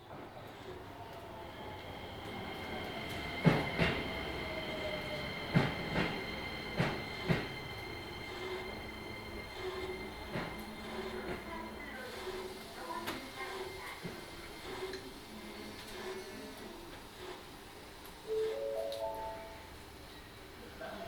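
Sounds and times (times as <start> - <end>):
high-pitched train whine: 0.4 - 14.4, 18.2 - 21.0
train wheels knocking over rail joints: 5.5 - 7.6.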